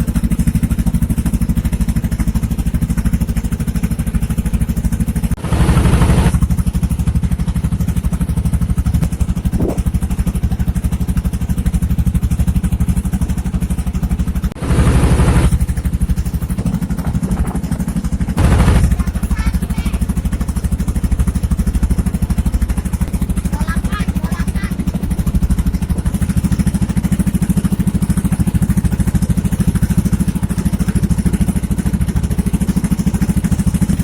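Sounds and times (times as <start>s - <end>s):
boat engine chugging: 0.0s - 34.0s
rushes of noise: 8.9s - 10.3s.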